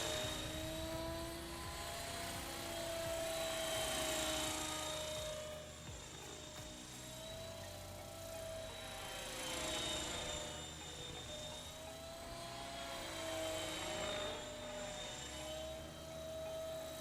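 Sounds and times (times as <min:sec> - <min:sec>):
model helicopter rotor whine: 0:00.0 - 0:17.0.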